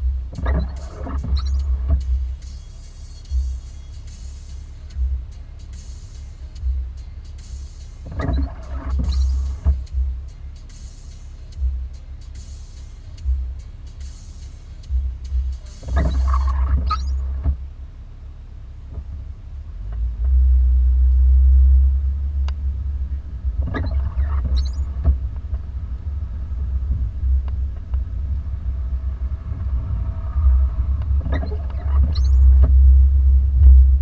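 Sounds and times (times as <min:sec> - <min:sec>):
car rumbling through snow: 0:00.0 - 0:34.0
brief squeaks: 0:15.8 - 0:17.4, 0:23.6 - 0:25.1, 0:31.3 - 0:32.6.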